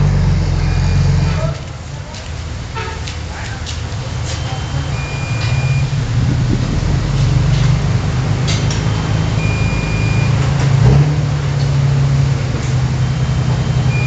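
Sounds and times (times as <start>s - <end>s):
diesel machinery droning: 0.0s - 14.0s
steady high beep: 0.6s - 1.3s, 4.3s - 6.2s, 8.8s - 10.4s, 13.0s - 14.0s.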